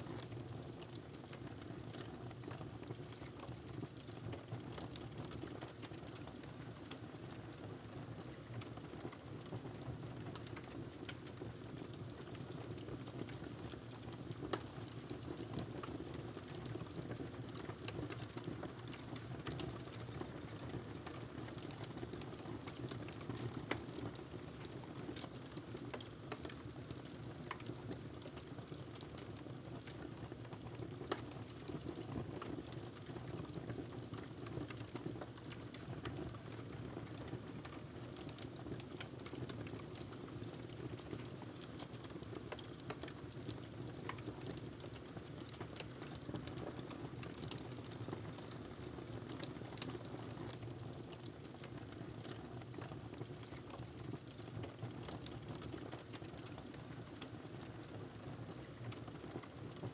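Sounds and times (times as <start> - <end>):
wood fire crackling: 21.5 - 31.8, 32.4 - 58.0.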